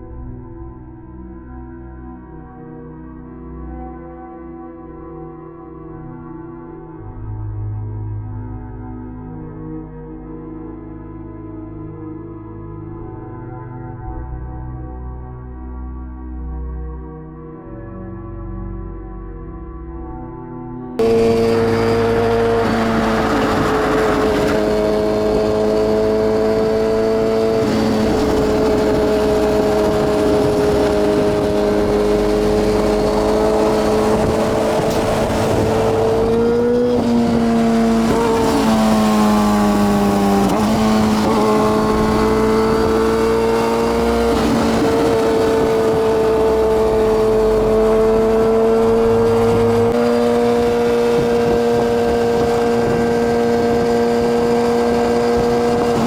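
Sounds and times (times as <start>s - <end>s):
motorcycle engine at high revs: 21.0s - 56.0s.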